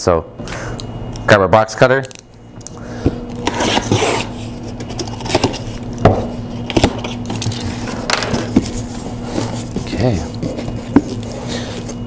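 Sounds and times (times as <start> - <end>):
blade scraping packing tape: 3.4 - 5.8.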